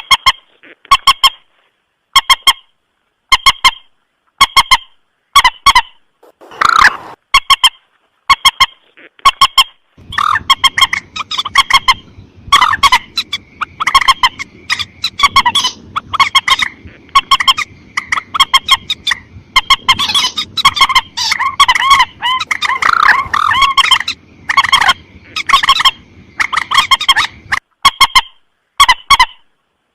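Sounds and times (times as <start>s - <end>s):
rail bird honking calls: 4.5s - 29.4s
faint hiss: 6.0s - 7.2s.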